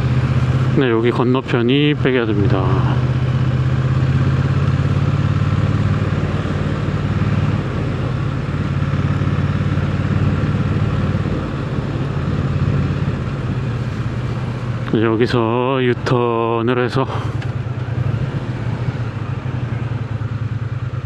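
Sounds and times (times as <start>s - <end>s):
motorcycle engine running: 0.0s - 21.0s
road noise: 0.0s - 21.0s
wind rushing: 3.0s - 14.9s, 17.1s - 20.2s.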